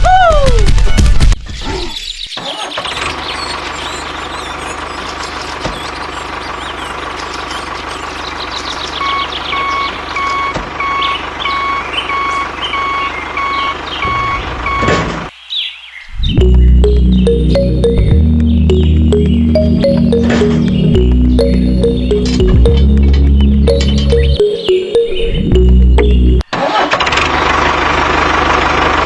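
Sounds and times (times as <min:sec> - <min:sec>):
reversing alarm beeping: 0:09.0 - 0:15.0.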